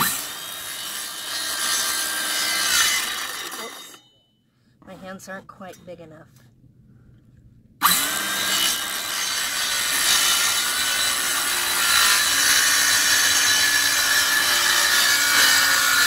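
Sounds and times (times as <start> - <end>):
power saw cutting wood: 0.0 - 4.0, 7.8 - 16.0.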